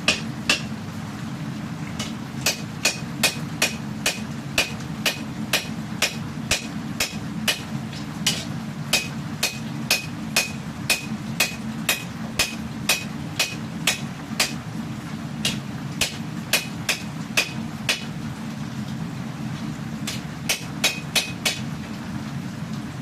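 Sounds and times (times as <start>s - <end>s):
steady low hum: 0.0s - 23.0s
hammer striking steel on anvil: 0.1s - 0.7s, 2.0s - 7.7s, 8.3s - 14.6s, 15.4s - 18.1s, 20.1s - 21.6s.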